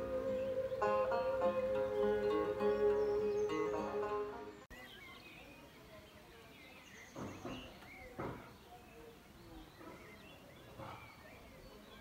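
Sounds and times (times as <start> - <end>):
plucked-string music: 0.0 - 4.7
birds chirping: 0.0 - 12.0
faint outdoor ambience: 0.0 - 12.0.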